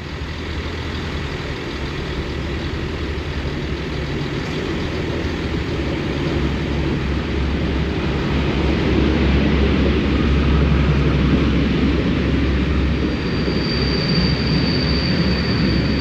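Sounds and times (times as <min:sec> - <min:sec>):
diesel locomotive engine drone: 0:00.0 - 0:16.0.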